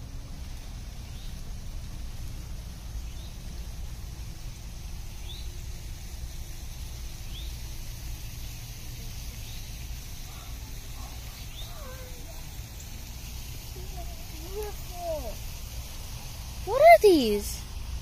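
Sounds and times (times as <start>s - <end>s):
high insect hiss: 0.0s - 18.0s
bird chirping: 9.4s - 15.1s.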